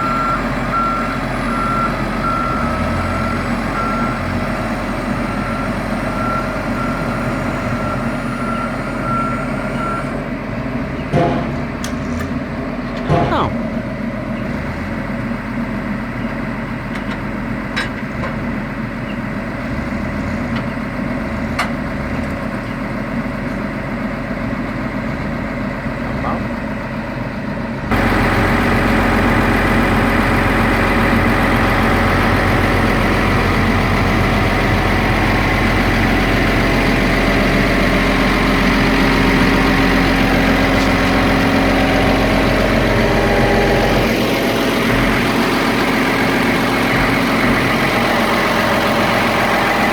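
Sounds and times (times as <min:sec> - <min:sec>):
machine engine running: 0:27.9 - 0:49.9.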